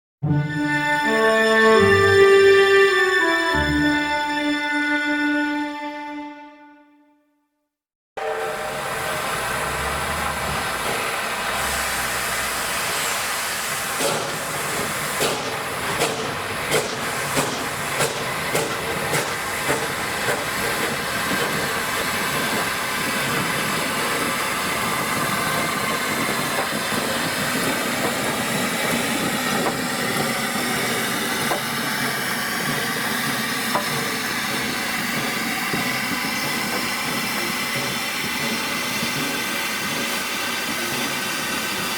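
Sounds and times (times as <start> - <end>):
steam locomotive hissing: 8.2 - 41.9
locomotive beats: 8.4 - 41.9.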